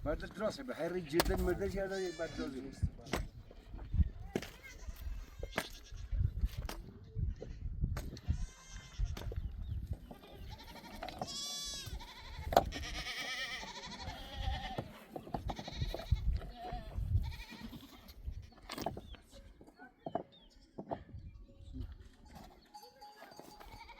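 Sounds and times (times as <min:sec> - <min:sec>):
goats and sheep bleating: 0:00.8 - 0:03.2, 0:04.2 - 0:06.2, 0:08.2 - 0:09.4, 0:10.0 - 0:18.7, 0:22.8 - 0:23.9.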